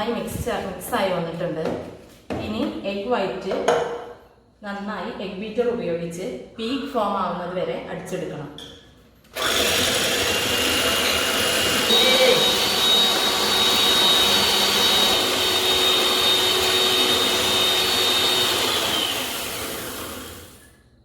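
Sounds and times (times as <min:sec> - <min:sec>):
electric egg beater whirring: 0:09.3 - 0:20.7.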